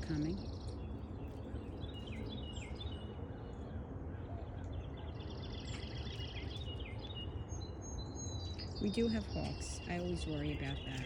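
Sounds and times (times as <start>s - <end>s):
low outdoor rumble: 0.0s - 11.0s
songbirds chirping: 0.0s - 11.0s.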